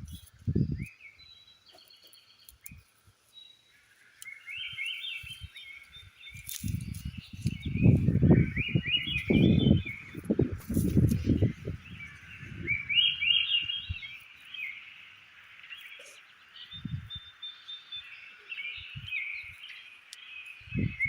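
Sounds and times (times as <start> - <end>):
small birds chirping trills: 0.0 - 21.0
rustling: 5.8 - 7.7.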